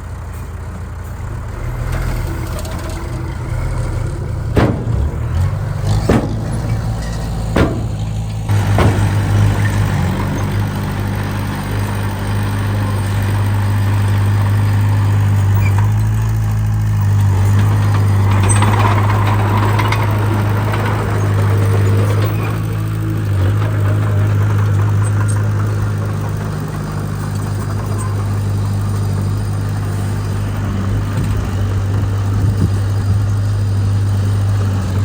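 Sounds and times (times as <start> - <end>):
heavy diesel engine running: 0.0 - 35.0
sharp knocks: 4.6 - 10.2.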